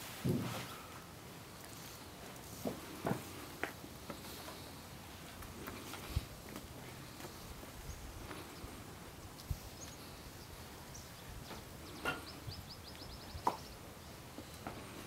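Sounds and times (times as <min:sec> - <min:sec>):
small bird chirping: 0:09.6 - 0:14.1.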